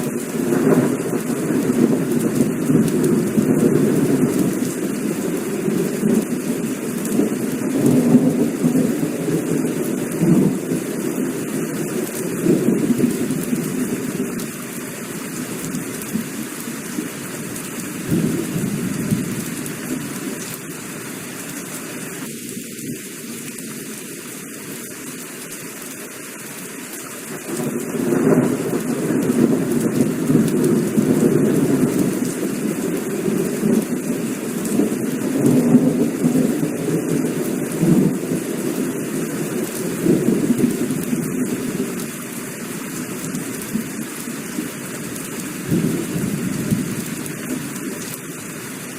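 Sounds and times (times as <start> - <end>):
heavy rain falling: 0.0 - 48.9
rolling thunder rumbling: 0.4 - 14.5, 18.0 - 20.3, 27.5 - 42.0, 45.7 - 47.3.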